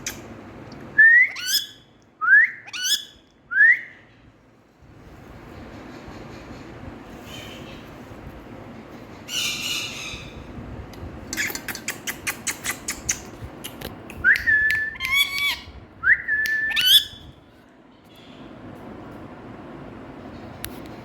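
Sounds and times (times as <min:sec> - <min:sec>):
parakeet squawking and whistling: 0:01.2 - 0:01.8, 0:02.5 - 0:03.2, 0:14.8 - 0:15.7, 0:16.5 - 0:17.2.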